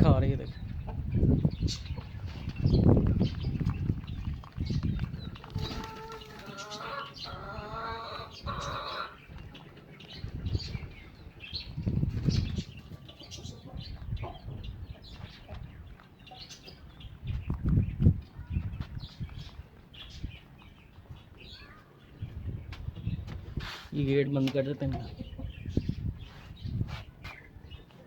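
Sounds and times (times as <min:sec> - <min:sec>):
hen calling: 0:05.4 - 0:09.4.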